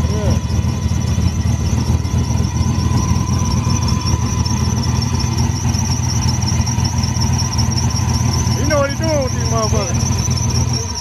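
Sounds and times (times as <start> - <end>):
car engine idling: 0.0 - 11.0
high-pitched turbo whine: 0.0 - 11.0.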